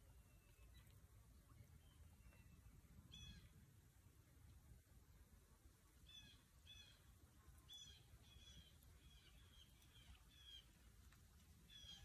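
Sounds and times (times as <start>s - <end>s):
faint high bird calls: 1.7s - 3.6s, 6.1s - 7.0s, 7.6s - 10.8s, 11.7s - 12.0s.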